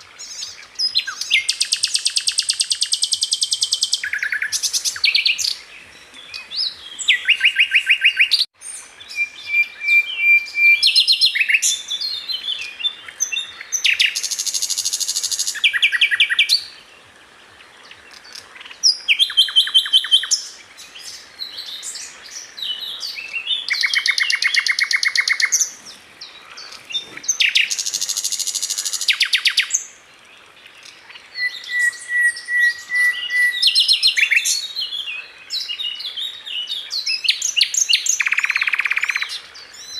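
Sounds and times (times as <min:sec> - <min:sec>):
flycatcher singing: 0:17.8 - 0:29.9.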